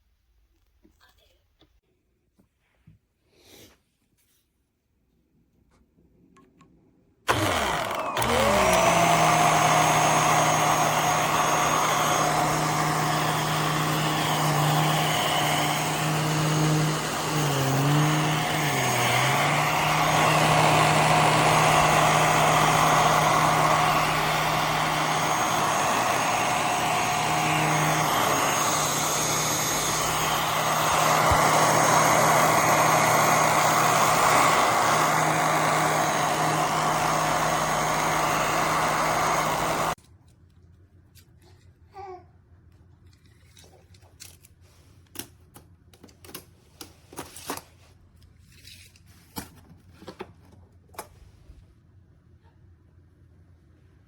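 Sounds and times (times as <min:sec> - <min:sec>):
motor spinning up and running: 0:07.3 - 0:40.0.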